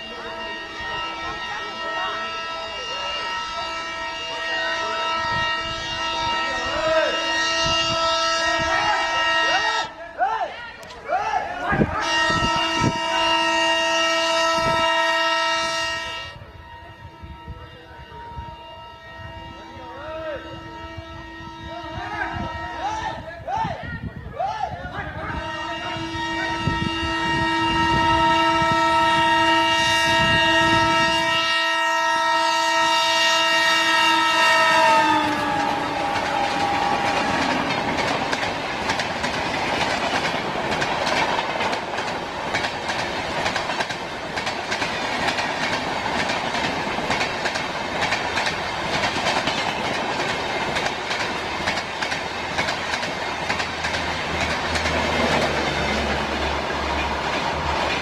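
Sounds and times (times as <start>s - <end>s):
train horn blaring: 0.0s - 10.0s, 11.5s - 24.1s, 24.9s - 58.0s
train wagons rumbling on rails: 0.0s - 10.0s, 10.8s - 58.0s.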